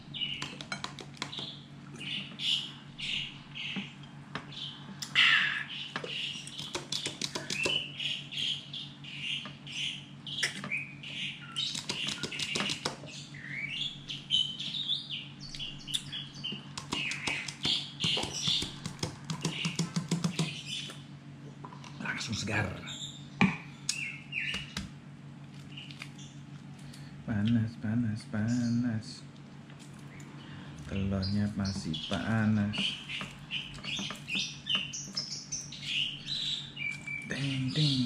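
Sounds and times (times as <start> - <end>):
small birds chirping: 0.0 - 38.0
steady low hum: 0.0 - 38.0.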